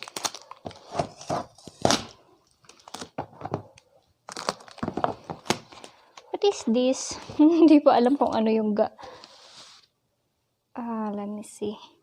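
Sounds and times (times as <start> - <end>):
plastic wrapping crinkling: 0.0 - 6.0.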